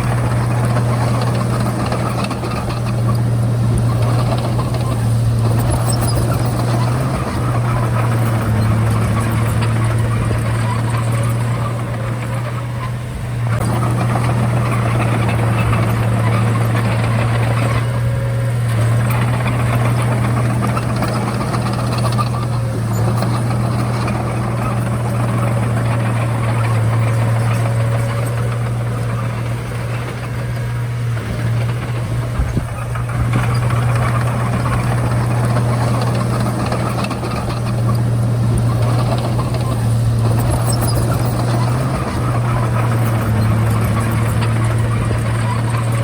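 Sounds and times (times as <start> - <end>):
bulldozer diesel engine droning: 0.0 - 46.0.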